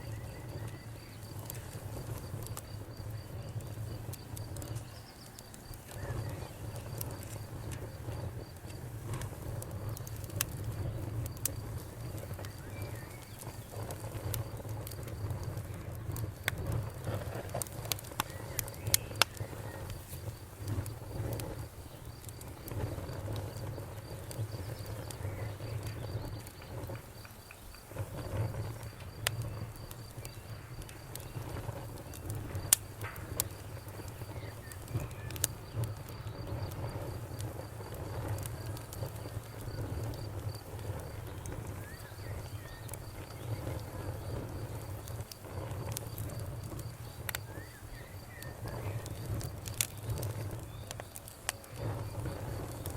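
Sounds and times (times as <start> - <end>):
faint bird chirps: 0.0 - 1.6, 12.4 - 13.8, 47.4 - 49.2
campfire crackling and popping: 0.0 - 52.9
cricket chirping: 0.0 - 52.9.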